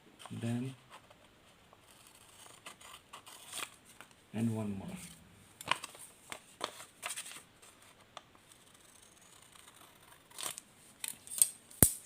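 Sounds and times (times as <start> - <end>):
faint paper handling: 3.2 - 8.3.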